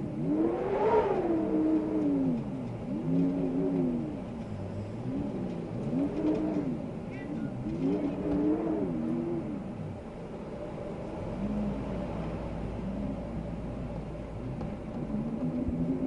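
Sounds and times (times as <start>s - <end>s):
wind howling in gusts: 0.1s - 16.0s.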